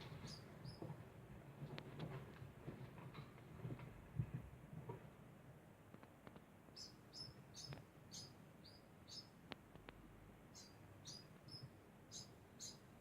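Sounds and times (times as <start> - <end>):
degu chirping: 0.1 - 0.8, 6.8 - 9.3, 10.5 - 12.9.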